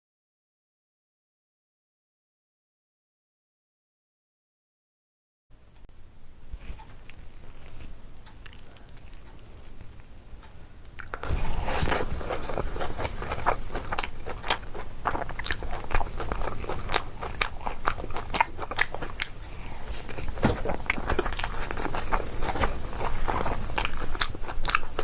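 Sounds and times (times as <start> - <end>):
crisp chewing crunches: 6.6 - 10.1, 10.8 - 25.0.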